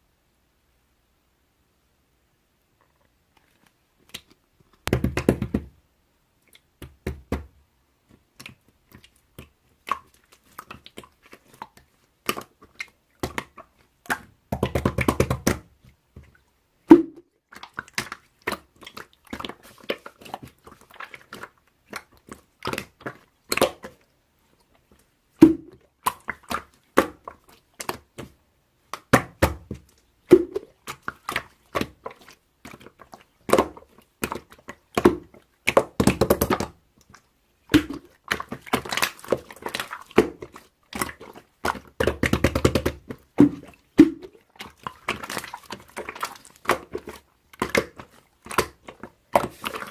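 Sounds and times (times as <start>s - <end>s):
slime squished by hand: 24.9s - 49.9s.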